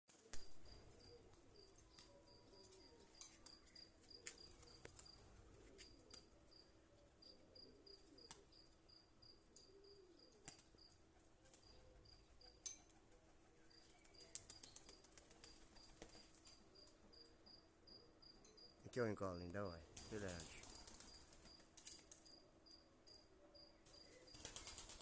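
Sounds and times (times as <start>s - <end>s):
faint cricket chirping: 0.1s - 19.0s, 19.9s - 25.0s
pigeons cooing: 0.2s - 8.6s, 9.5s - 16.8s.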